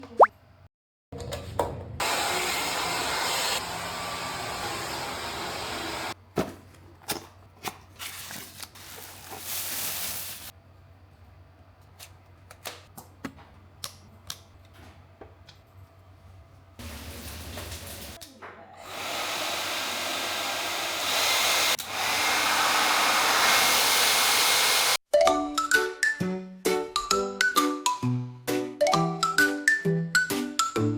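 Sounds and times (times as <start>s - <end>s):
hair dryer blowing: 2.0s - 6.2s, 18.8s - 25.0s.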